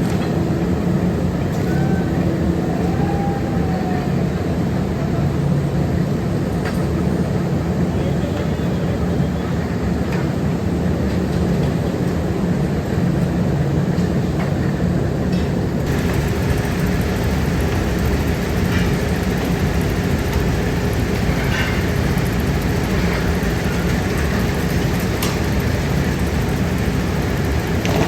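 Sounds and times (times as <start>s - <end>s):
machinery rumble: 15.5s - 28.0s.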